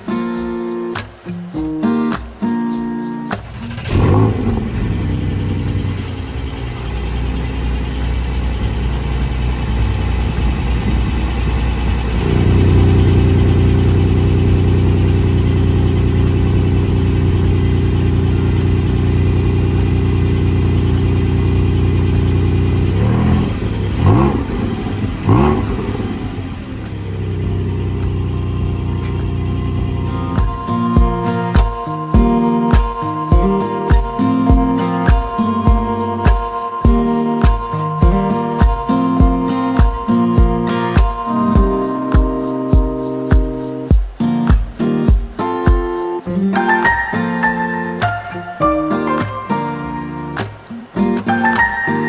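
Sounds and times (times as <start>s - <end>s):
car engine idling and revving: 3.4s - 30.7s.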